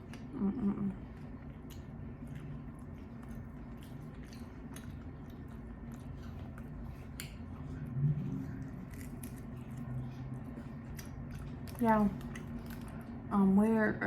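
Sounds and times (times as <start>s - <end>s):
chewing chicken wings: 0.0s - 13.3s.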